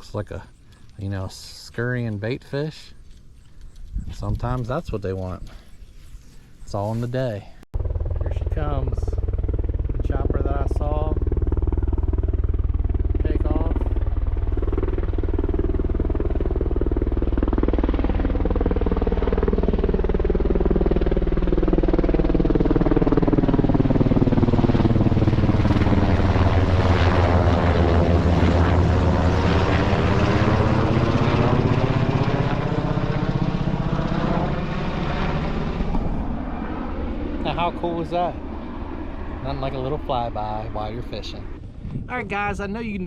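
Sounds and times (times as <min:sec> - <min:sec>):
helicopter rotor thudding: 0:07.8 - 0:37.8.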